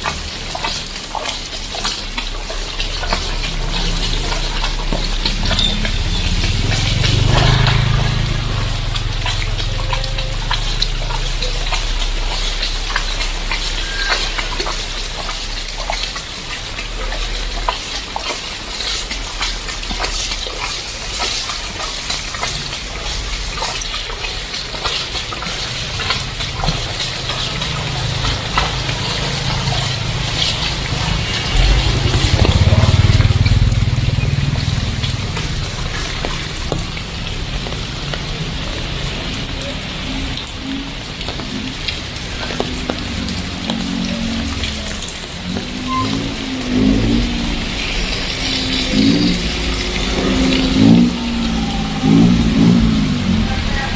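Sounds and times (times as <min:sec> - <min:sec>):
heavy rain on flooded street: 0:00.0 - 0:53.9
low rumble: 0:42.0 - 0:53.9.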